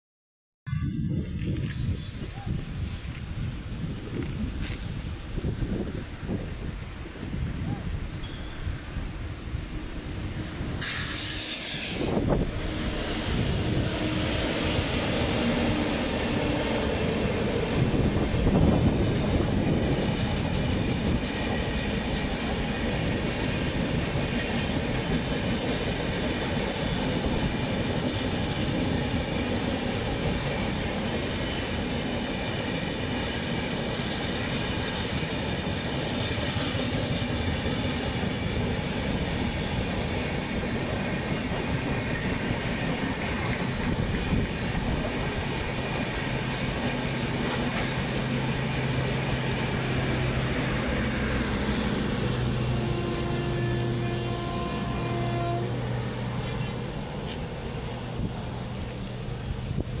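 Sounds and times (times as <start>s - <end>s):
train wheels rumbling on rails: 0.8s - 60.0s
clickety-clack over rail joints: 13.2s - 53.6s, 56.4s - 60.0s.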